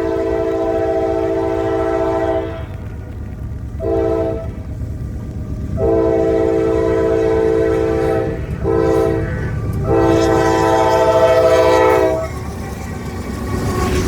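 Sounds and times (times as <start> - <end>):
locomotive air horn blasts: 0.0 - 2.9, 3.8 - 4.7, 5.8 - 12.5
passing train rumble: 0.0 - 14.0.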